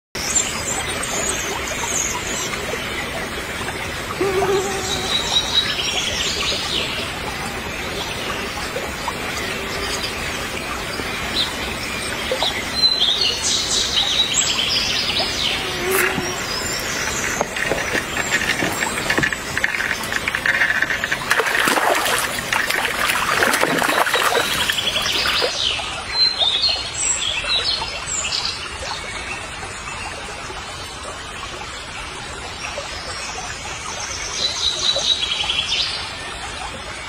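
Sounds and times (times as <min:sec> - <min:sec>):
birds chirping: 0:04.0 - 0:25.8
water splash: 0:15.2 - 0:25.6.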